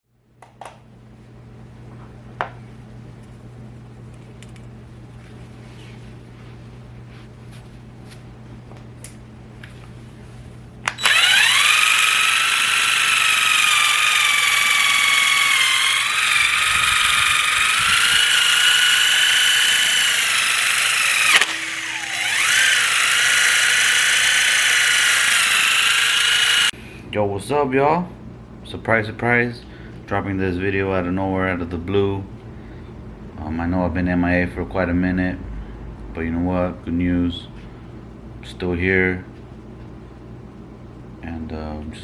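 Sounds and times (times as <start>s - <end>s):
low hum: 0.1s - 27.0s
power drill motor whining: 10.9s - 26.7s.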